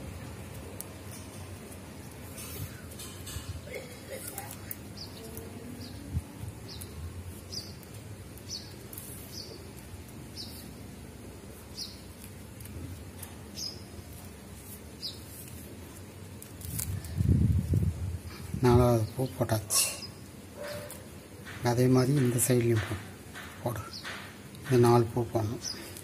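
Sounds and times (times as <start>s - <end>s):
bird chirping: 4.4s - 10.8s, 11.6s - 12.2s, 13.2s - 14.2s, 15.0s - 15.4s, 22.6s - 24.3s.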